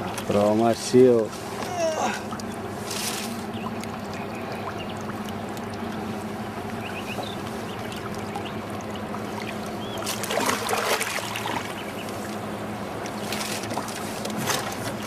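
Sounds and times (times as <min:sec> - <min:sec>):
low motor hum: 0:00.0 - 0:15.0
fish splashing in water: 0:01.5 - 0:15.0.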